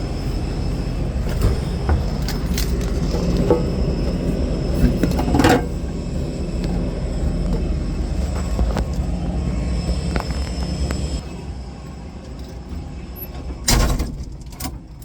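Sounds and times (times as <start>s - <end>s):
short rattle: 0.0s - 9.1s
vehicle engine low rumble: 0.0s - 15.0s.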